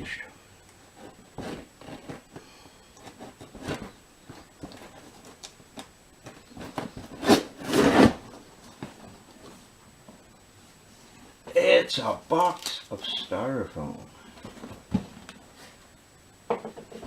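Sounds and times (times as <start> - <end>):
cardboard parcel being opened: 6.2 - 9.1.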